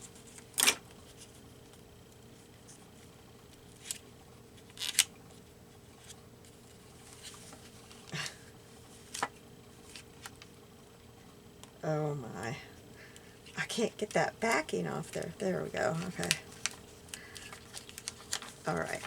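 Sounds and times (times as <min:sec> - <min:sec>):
scratchy paper crackles: 0:15.9 - 0:19.0.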